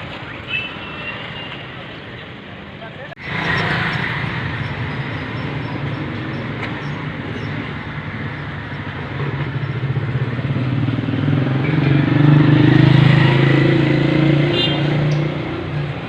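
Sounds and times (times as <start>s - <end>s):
road traffic noise: 0.0s - 16.0s
vehicle engine humming: 3.2s - 16.0s.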